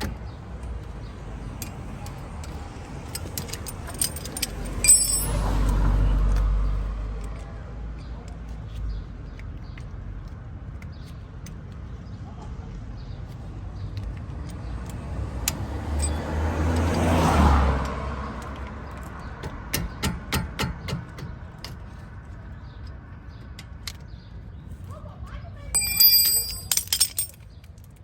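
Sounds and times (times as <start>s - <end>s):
vehicle passing by: 1.8s - 7.2s, 14.7s - 19.0s.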